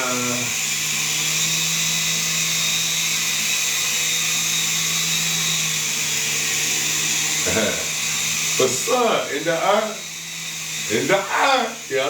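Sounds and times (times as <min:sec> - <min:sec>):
rc helicopter motor whine: 0:00.0 - 0:12.0.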